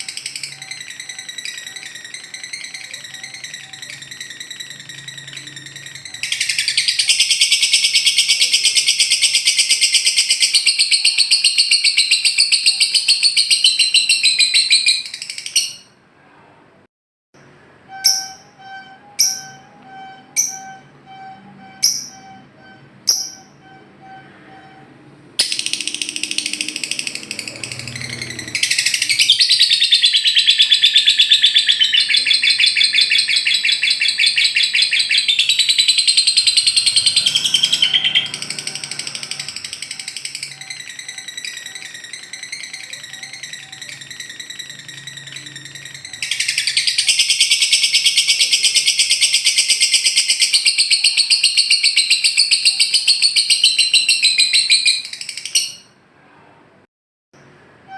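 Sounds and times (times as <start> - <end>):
bird rapid chattering trill: 0.0 - 15.8, 25.4 - 55.9.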